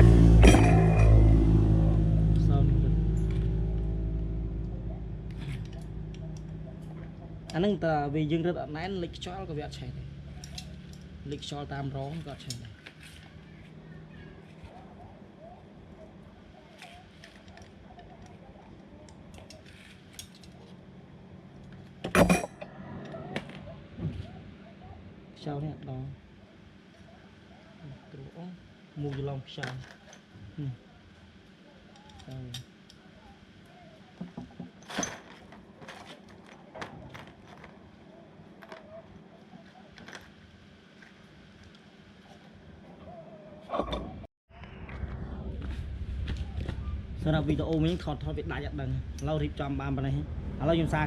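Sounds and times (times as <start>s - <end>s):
loud metallic clatter: 0.0s - 7.5s
metal tools clinking: 22.1s - 22.6s.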